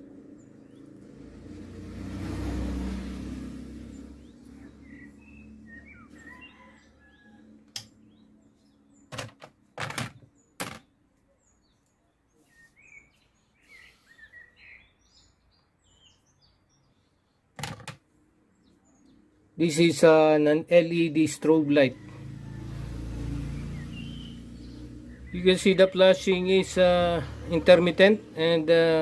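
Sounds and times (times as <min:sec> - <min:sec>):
vehicle rumble: 0:00.0 - 0:10.0, 0:21.5 - 0:29.0
birds chirping: 0:00.0 - 0:29.0.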